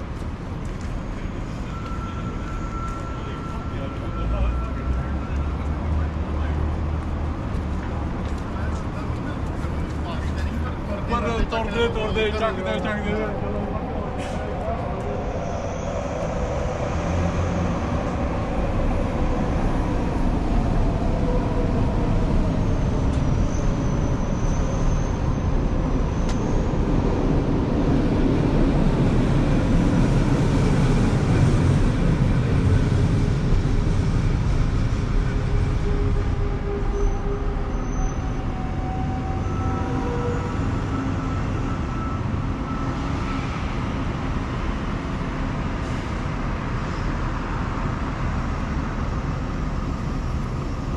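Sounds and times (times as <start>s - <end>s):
heavy vehicle going by: 0.0s - 50.9s
vehicles passing on busy road: 0.0s - 50.9s
faint squealing tones: 35.8s - 43.5s.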